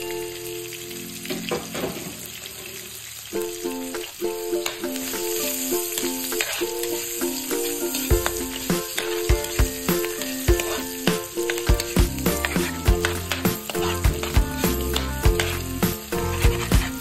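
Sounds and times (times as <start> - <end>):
food sizzling in a wok: 0.0 - 17.0
plucked background music: 3.4 - 17.0
metal ladle scraping a wok: 4.6 - 17.0.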